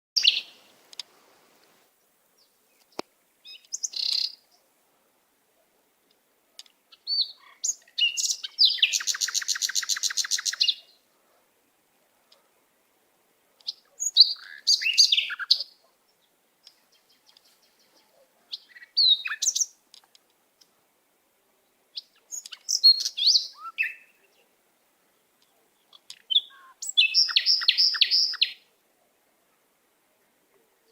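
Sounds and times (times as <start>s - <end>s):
songbird singing: 0.2s - 4.8s, 5.5s - 30.9s
fast bird trill: 26.3s - 28.6s.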